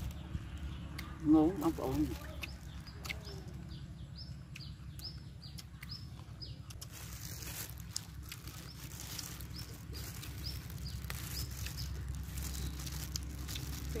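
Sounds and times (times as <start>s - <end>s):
low steady rumble: 0.0s - 14.0s
small bird chirping: 0.0s - 14.0s
leaves rustling in plastic gloves: 6.8s - 14.0s.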